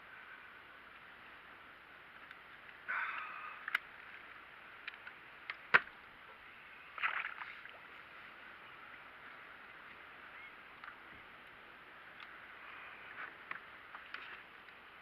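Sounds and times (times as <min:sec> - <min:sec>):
wind and sea hiss: 0:00.0 - 0:15.0
water splashing against kayak: 0:06.7 - 0:10.0.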